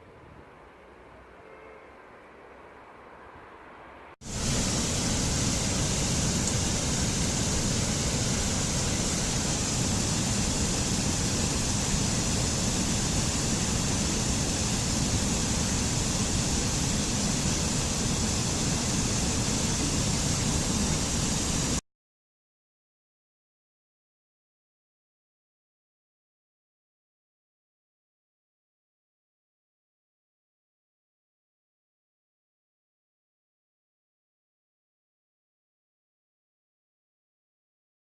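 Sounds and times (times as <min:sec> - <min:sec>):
loud steady rushing noise: 0:02.7 - 0:21.8.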